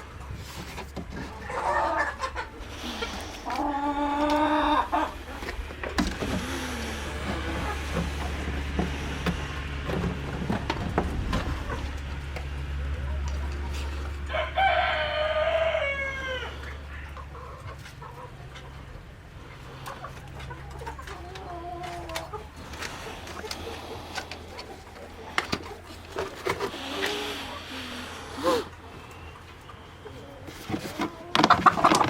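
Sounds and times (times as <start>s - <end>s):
chickens clucking: 0.0s - 32.0s
low hum: 2.4s - 17.6s
rooster crowing: 14.2s - 16.9s.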